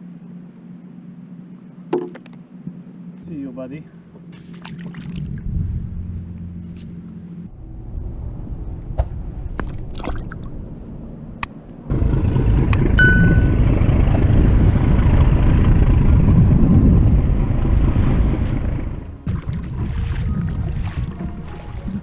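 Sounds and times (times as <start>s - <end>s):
wind and water rumbling on microphone: 4.3s - 6.9s, 7.5s - 22.0s
short high ding: 13.0s - 13.6s.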